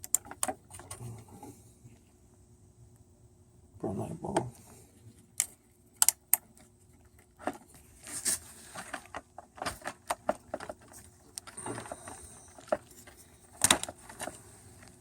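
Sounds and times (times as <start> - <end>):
plastic clicks and rattles: 8.9 - 14.4.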